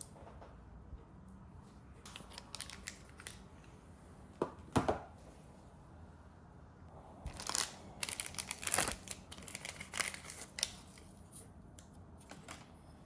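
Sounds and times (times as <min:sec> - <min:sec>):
crinkling and clicking handling: 0:07.3 - 0:12.7.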